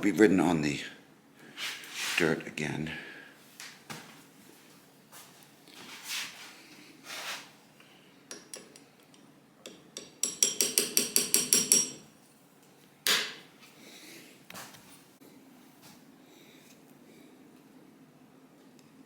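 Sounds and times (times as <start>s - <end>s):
soft hisses: 1.5s - 2.4s, 5.7s - 7.6s
metal-on-metal taps: 8.3s - 12.0s.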